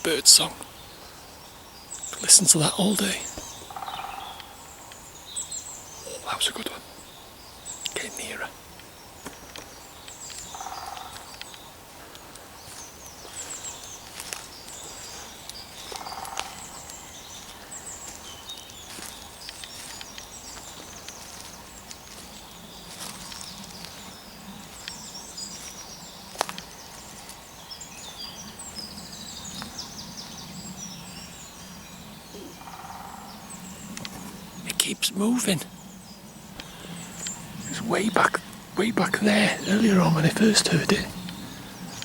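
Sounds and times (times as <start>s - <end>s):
songbirds singing and chirping: 0.0s - 42.0s
woodpecker drumming: 1.9s - 30.9s, 32.0s - 42.0s.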